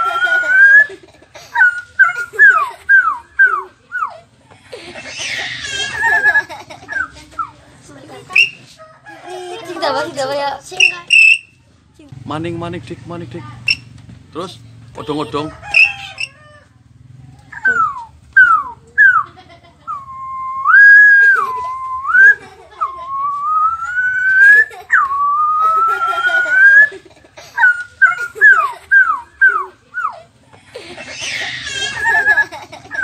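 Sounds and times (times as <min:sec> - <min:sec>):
boy making whistle-like tones: 0:01.6 - 0:04.1, 0:08.3 - 0:08.7, 0:10.7 - 0:11.6, 0:15.7 - 0:16.4, 0:17.5 - 0:19.2, 0:19.9 - 0:26.9.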